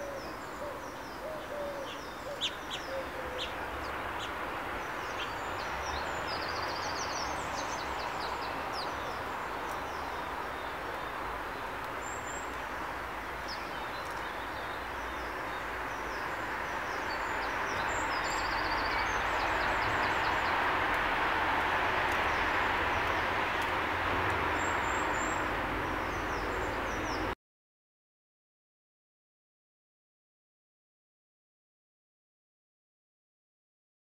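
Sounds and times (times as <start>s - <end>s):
small birds chirping: 0.0s - 27.4s
rushing background noise: 1.9s - 27.3s.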